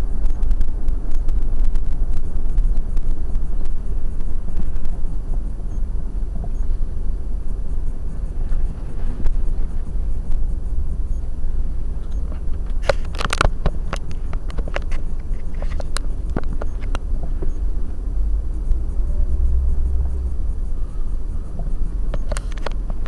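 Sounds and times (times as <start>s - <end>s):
car engine and road rumble: 0.0s - 23.0s
scattered ticks: 0.1s - 23.0s
sharp clicks and knocks: 11.9s - 19.0s, 21.5s - 23.0s.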